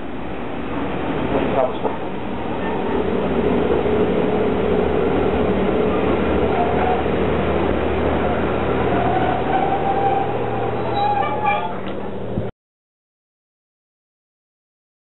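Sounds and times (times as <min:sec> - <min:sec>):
steam locomotive rushing noise: 0:00.0 - 0:12.4
faint thin squeal: 0:09.3 - 0:11.8.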